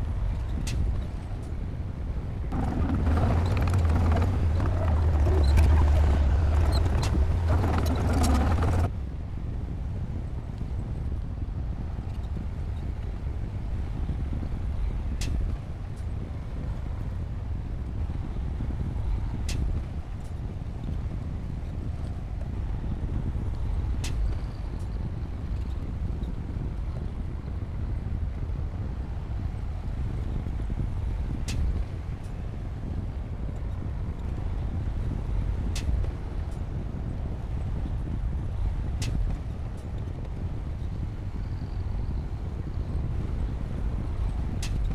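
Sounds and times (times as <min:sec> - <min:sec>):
bulldozer diesel engine rumbling: 0:02.5 - 0:08.9.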